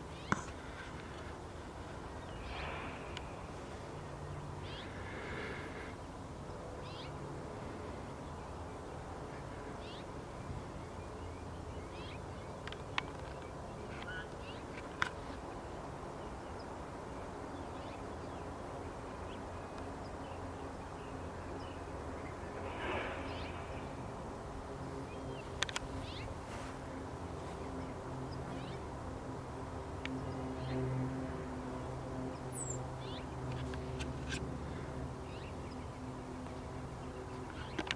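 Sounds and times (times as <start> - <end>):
birds chirping: 0.0 - 6.2, 31.8 - 37.9.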